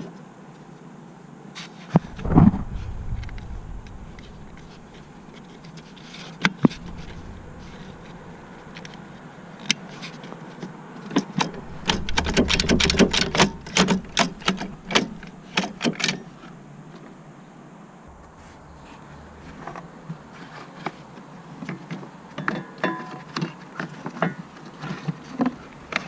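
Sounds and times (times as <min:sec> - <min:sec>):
sharp clicks and knocks: 0:11.4 - 0:16.5.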